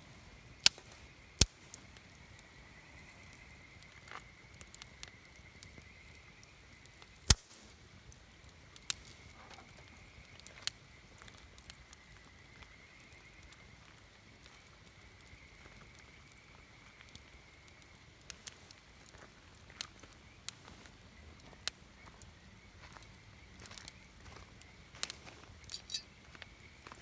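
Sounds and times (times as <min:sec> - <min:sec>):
campfire wood popping: 0:00.0 - 0:27.0
faint steady high tone: 0:25.7 - 0:26.1.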